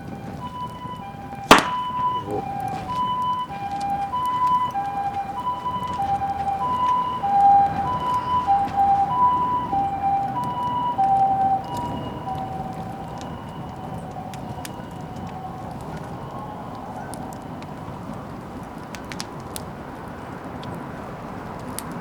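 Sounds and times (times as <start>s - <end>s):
two-tone siren: 0.0s - 18.4s
bonfire crackling: 0.0s - 22.0s
sharp crack: 1.4s - 2.7s.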